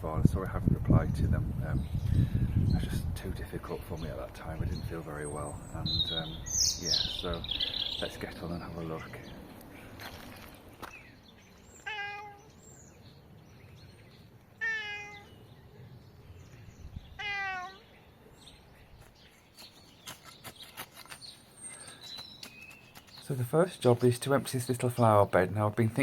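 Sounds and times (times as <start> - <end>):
cat meowing: 11.8 - 12.5, 14.6 - 15.4, 17.1 - 17.9.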